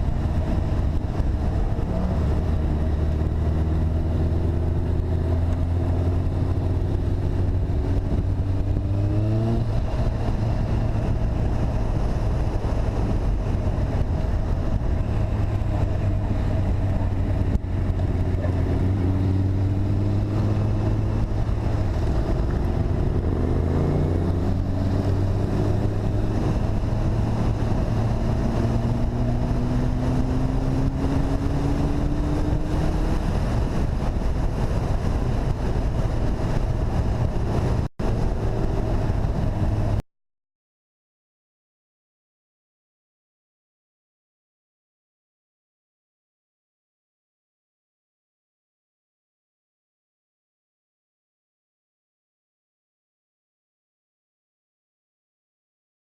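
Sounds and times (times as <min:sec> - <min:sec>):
vehicle engine running: 0:00.0 - 0:40.0
wind and road rush: 0:00.0 - 0:40.0.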